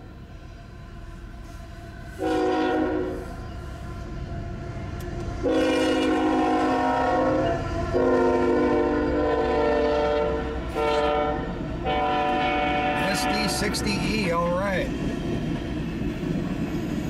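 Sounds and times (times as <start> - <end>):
low rumble of train wheels: 0.0 - 17.0
locomotive air horn blasts: 2.1 - 3.3, 5.4 - 13.8.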